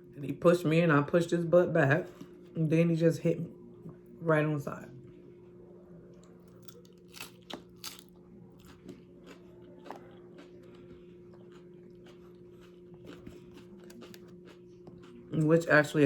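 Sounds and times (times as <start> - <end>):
steady low hum: 0.0 - 16.0
crunching and chewing chips: 6.2 - 16.0.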